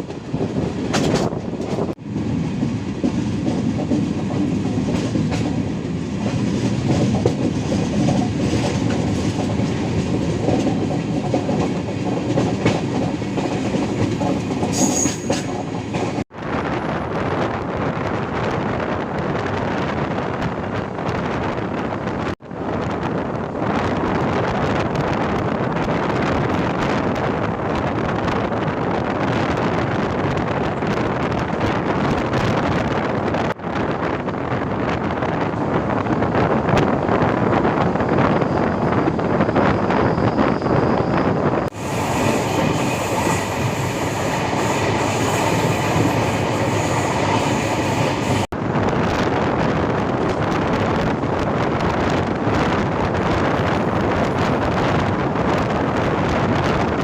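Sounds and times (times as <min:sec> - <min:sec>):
passenger train running at speed: 0:00.0 - 0:57.0
high-pitched wheel squeal: 0:14.7 - 0:15.3, 0:38.1 - 0:48.4.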